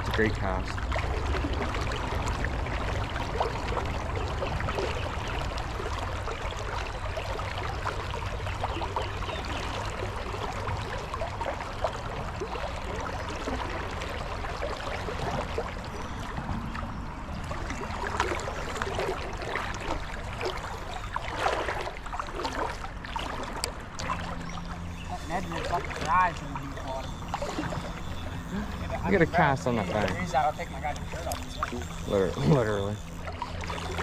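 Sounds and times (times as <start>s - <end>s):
creek water running over rocks: 0.0s - 34.0s
splashes in water: 8.6s - 34.0s.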